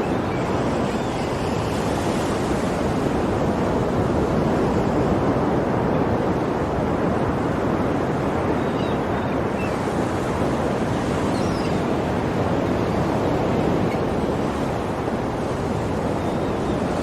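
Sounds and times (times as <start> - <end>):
sea waves washing on shore: 0.0 - 17.0.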